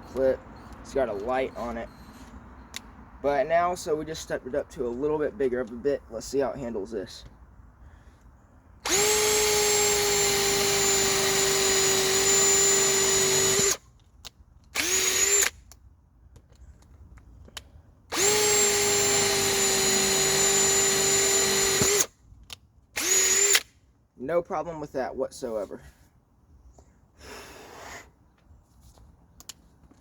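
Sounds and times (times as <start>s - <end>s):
hammer drill motor whine: 8.8s - 13.8s, 14.8s - 15.5s, 18.1s - 22.1s, 23.0s - 23.6s.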